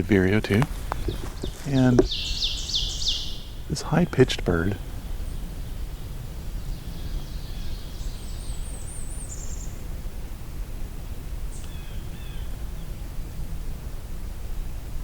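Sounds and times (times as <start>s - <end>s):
low background noise: 0.0s - 15.0s
warbler high-pitched song: 1.0s - 4.2s, 5.2s - 9.8s.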